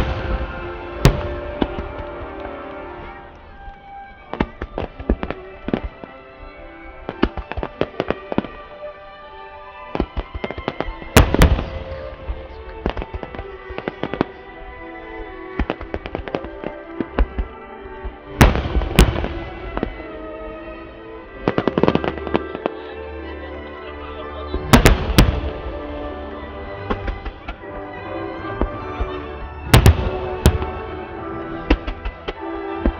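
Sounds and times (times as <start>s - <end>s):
firework shells bursting: 31.6s - 32.9s.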